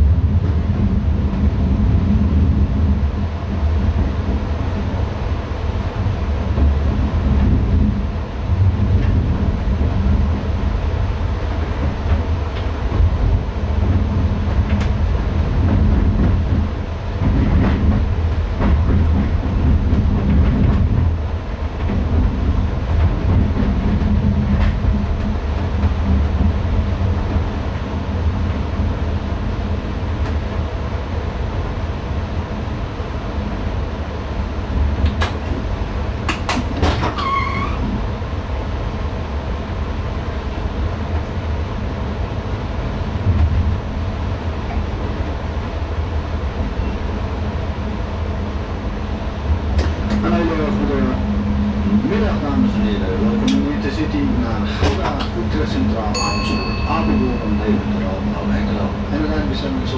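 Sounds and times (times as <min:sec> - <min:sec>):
train rumble on rails: 0:00.0 - 0:59.9.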